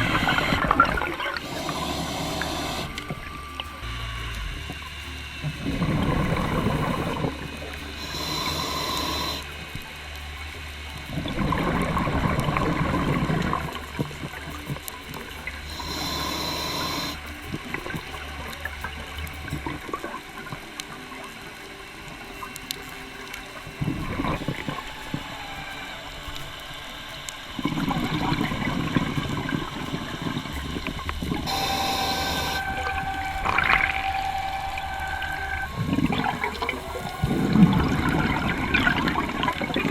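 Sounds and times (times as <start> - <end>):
exhaled bubbles underwater: 0.0 - 39.9
regulator inhale hiss: 1.4 - 3.6, 5.7 - 9.7, 15.7 - 17.5, 29.0 - 35.8.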